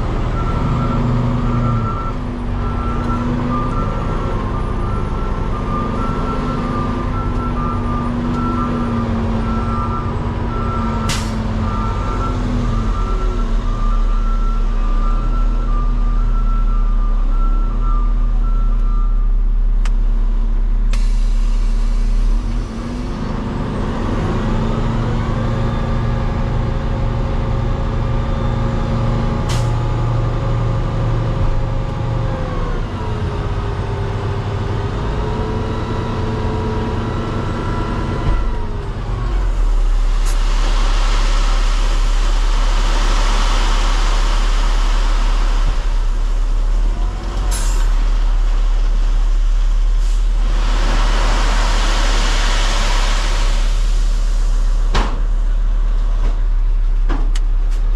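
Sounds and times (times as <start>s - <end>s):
diesel truck engine running: 0.0s - 57.9s.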